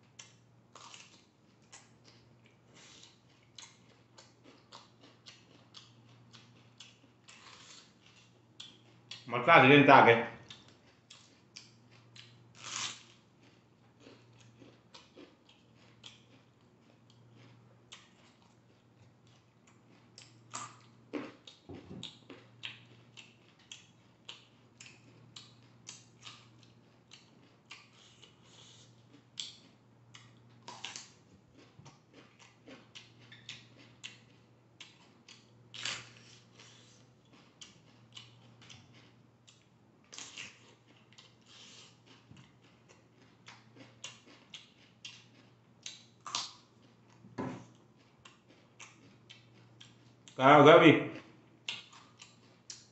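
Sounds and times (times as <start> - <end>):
crunching raw vegetables: 0.2 - 39.2.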